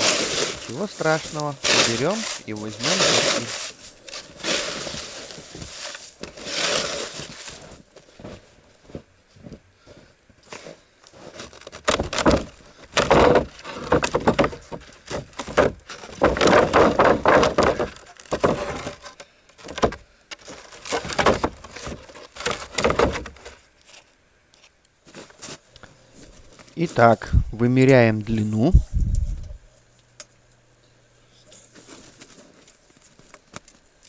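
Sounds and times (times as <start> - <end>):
wooden boards scraping and clattering: 0.0 - 9.0, 10.5 - 24.0
snow being cleared: 0.0 - 14.1.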